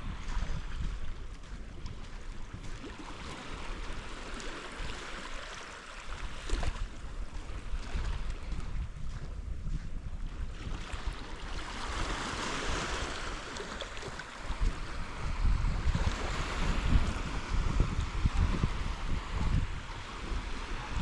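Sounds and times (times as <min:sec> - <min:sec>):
wind gusting on microphone: 0:00.0 - 0:05.3, 0:06.1 - 0:21.0
sea surf washing on shore: 0:10.4 - 0:21.0.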